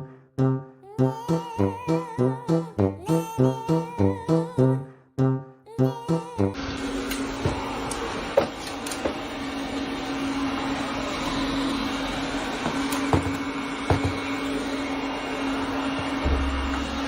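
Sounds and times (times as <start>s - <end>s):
mechanical hum: 6.6s - 17.0s.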